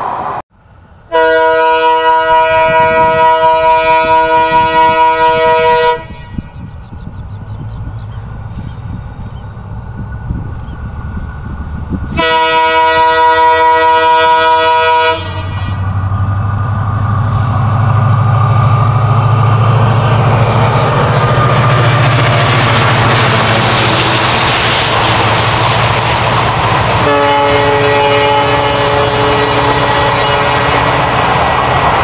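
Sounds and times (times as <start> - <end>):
rush of wheels on rails: 0.0 - 32.0
train horn blast: 1.1 - 6.5, 12.1 - 16.0, 27.0 - 31.2
locomotive engine rumble: 2.3 - 32.0.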